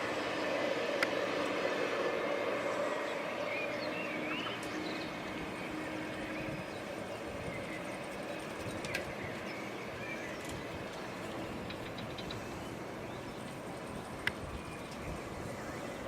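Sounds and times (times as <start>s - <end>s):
train rumbling past: 0.0s - 16.0s
bird chirping: 3.1s - 15.1s.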